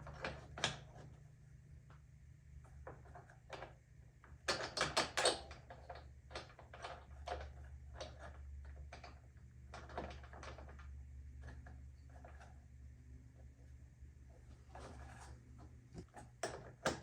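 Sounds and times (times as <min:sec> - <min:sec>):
plastic panels clicking and knocking: 0:16.0 - 0:17.0.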